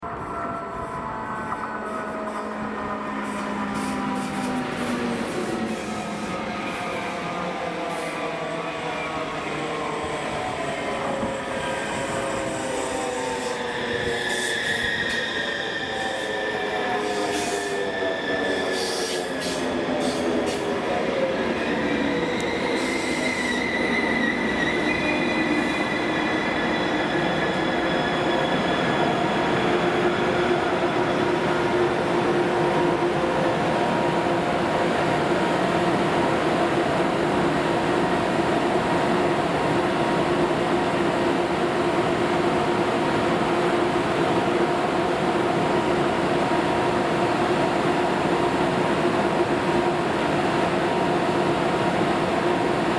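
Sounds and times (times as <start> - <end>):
train whine: 0.0 - 52.9.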